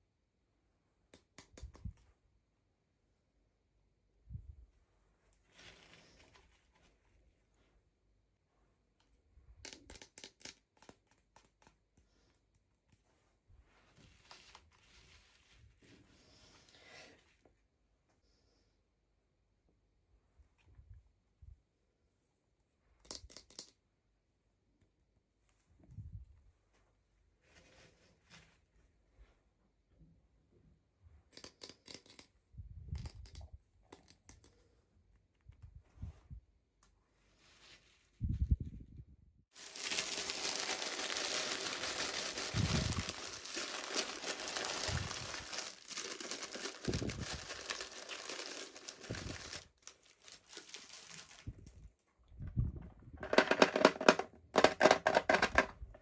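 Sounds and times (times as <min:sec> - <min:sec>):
packaging crinkling and tearing: 0:39.6 - 0:51.5.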